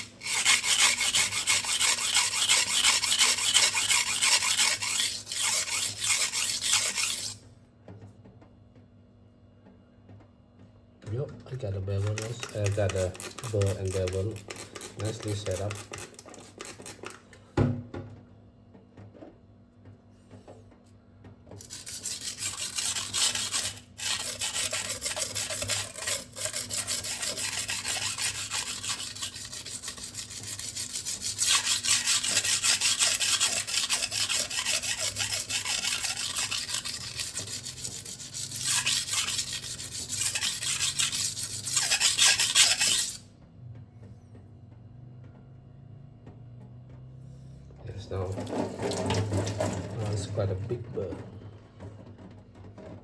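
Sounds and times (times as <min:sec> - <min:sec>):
knife scraping on sharpening stone: 0:00.0 - 0:07.4, 0:12.0 - 0:17.1, 0:21.6 - 0:43.2.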